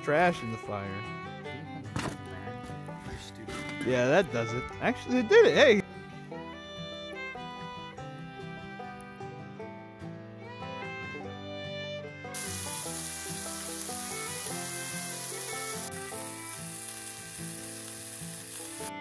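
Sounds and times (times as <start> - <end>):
burger patties sizzling: 12.4 - 19.0.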